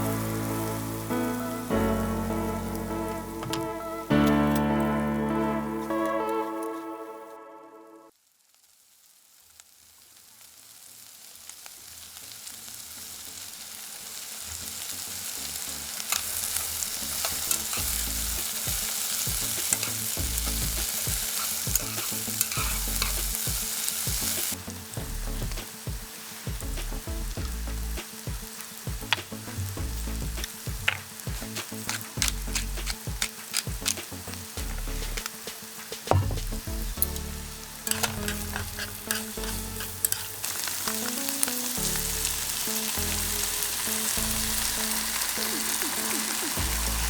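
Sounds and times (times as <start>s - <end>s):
food sizzling in a pan: 0.0s - 6.9s, 8.1s - 47.0s
stirring clicks and knocks: 30.2s - 37.2s, 37.8s - 40.5s.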